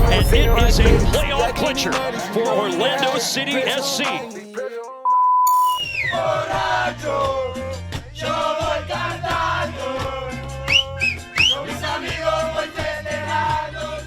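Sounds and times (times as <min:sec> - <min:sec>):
whistled melody over bass beat: 0:00.0 - 0:02.9, 0:05.2 - 0:06.3, 0:10.6 - 0:11.8
short rising whistles: 0:05.5 - 0:06.3, 0:10.7 - 0:11.6.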